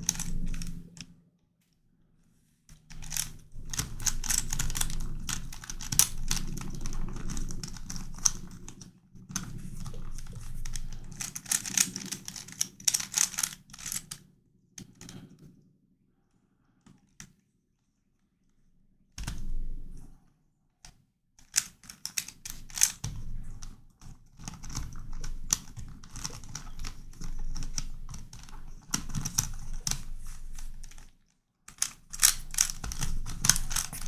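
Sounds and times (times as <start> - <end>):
plastic puzzle clicking: 0.0 - 0.7, 2.9 - 8.8, 9.4 - 14.2, 21.5 - 23.2, 24.4 - 31.1, 31.7 - 34.0.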